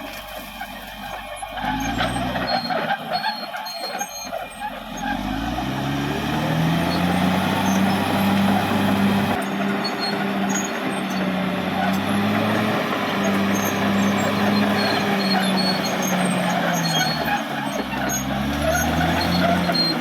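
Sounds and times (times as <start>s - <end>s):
bulldozer diesel engine revving: 0.0s - 20.0s
high squeaks: 0.0s - 20.0s.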